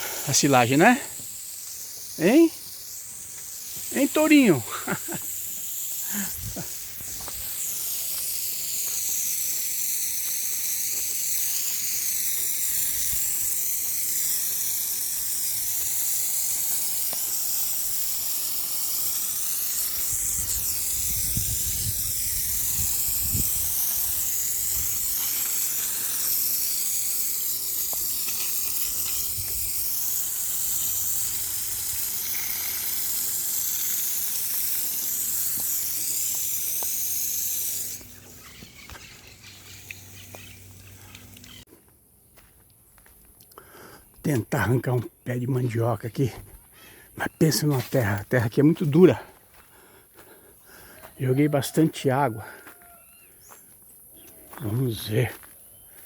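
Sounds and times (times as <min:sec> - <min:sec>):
shrill wildlife chorus: 0:38.0 - 0:41.6.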